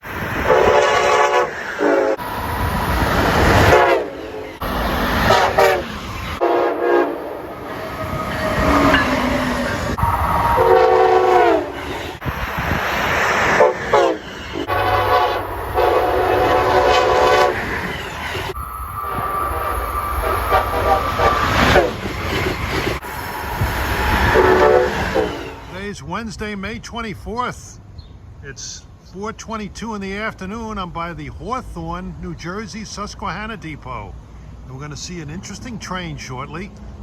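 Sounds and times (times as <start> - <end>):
locomotive and wheels rumbling: 0.0 - 37.0
locomotive air horns: 0.4 - 2.3, 3.4 - 9.0, 9.9 - 12.3, 13.5 - 17.7, 19.0 - 22.1, 23.4 - 25.8.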